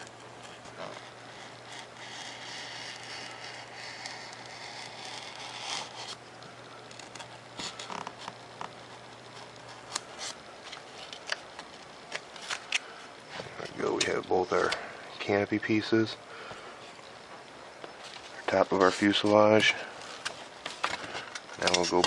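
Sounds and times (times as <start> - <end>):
knife cutting foam: 0.5 - 6.2.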